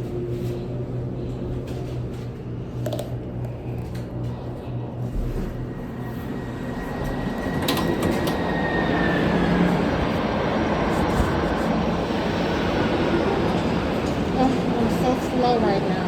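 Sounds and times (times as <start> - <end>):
elevator car rumbling: 5.0 - 16.0.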